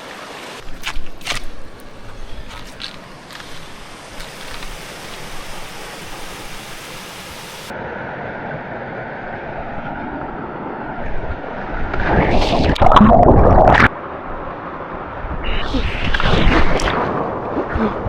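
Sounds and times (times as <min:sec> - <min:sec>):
river water flowing: 0:00.0 - 0:08.0.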